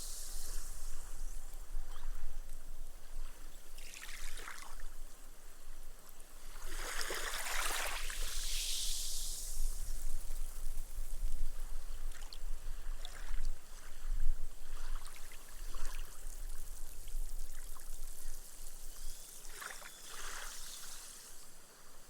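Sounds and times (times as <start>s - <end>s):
gentle waves lapping on sand: 0.0s - 18.8s, 19.5s - 22.0s.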